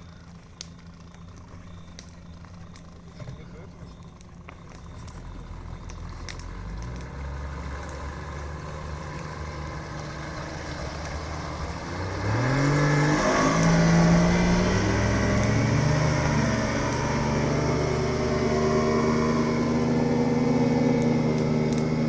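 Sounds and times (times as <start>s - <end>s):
outboard motor revving: 5.1s - 22.0s.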